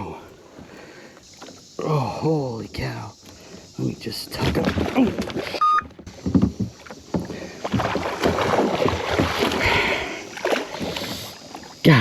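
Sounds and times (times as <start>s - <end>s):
water splashing: 3.2s - 12.0s.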